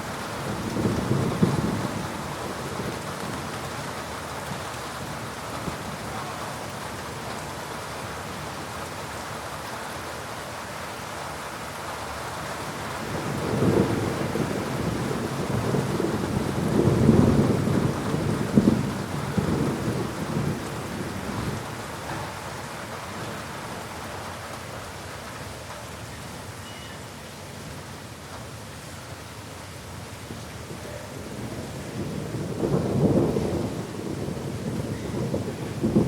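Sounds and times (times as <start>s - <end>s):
thunder rumbling: 0.0s - 3.6s, 13.0s - 23.5s, 31.2s - 36.0s
heavy rain: 0.0s - 36.0s.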